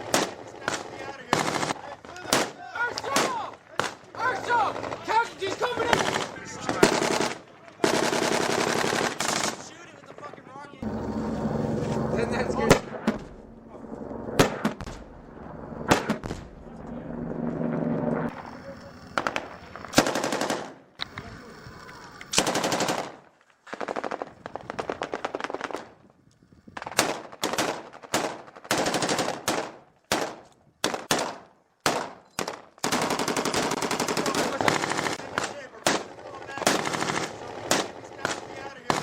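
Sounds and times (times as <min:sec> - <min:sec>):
automatic gunfire bursts: 0:05.8 - 0:09.6, 0:19.2 - 0:20.8, 0:22.4 - 0:23.2, 0:27.0 - 0:39.0.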